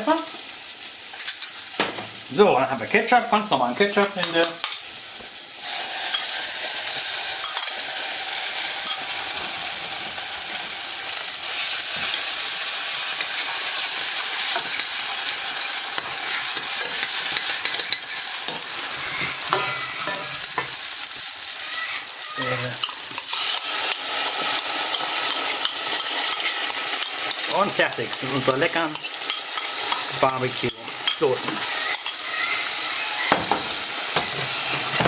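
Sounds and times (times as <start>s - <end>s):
onions sizzling in a pan: 0.0s - 35.0s
spoon scraping a pan: 4.0s - 9.5s, 11.4s - 21.1s, 22.8s - 35.0s.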